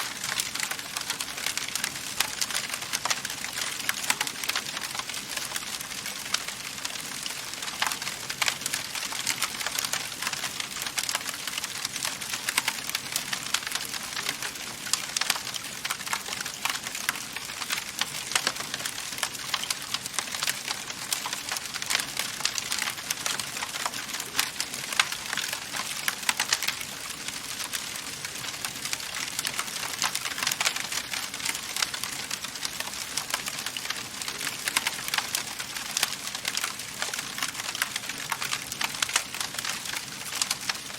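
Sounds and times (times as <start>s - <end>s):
wood fire pops and snaps: 0.2s - 40.9s.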